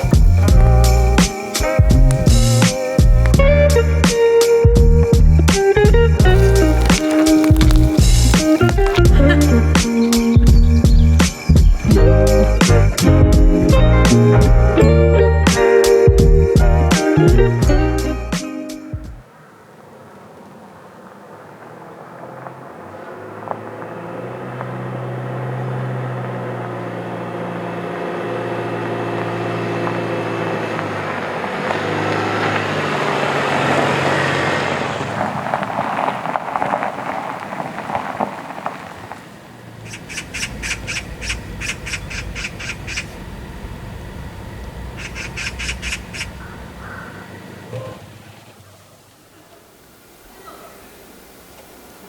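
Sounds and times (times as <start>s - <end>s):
tyres crackling over gravel: 0.0s - 3.4s, 6.2s - 12.6s, 19.2s - 42.4s
car engine running slowly: 0.0s - 15.4s, 19.9s - 48.5s
bird squawking: 6.6s - 11.9s, 39.9s - 43.2s, 45.0s - 48.1s, 50.3s - 51.0s.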